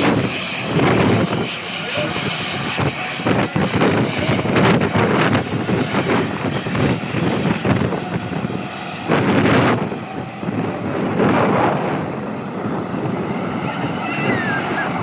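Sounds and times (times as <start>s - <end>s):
jet airliner engine noise: 0.0s - 15.0s
wind buffeting microphone: 0.0s - 15.0s.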